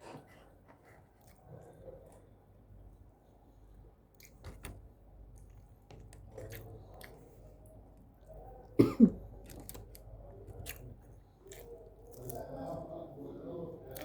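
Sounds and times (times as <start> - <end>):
chewing with wet mouth clicks: 5.3 - 8.5, 9.3 - 12.9.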